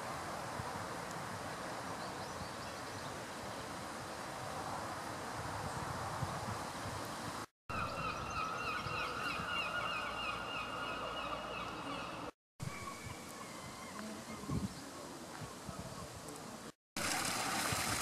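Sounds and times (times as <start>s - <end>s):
birds calling in repeated notes: 7.7s - 15.0s.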